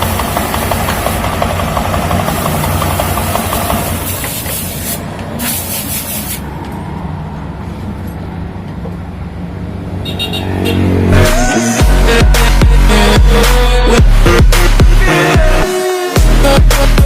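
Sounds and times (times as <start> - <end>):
scooter engine idling: 0.0 - 4.4
electronic music: 11.1 - 17.0.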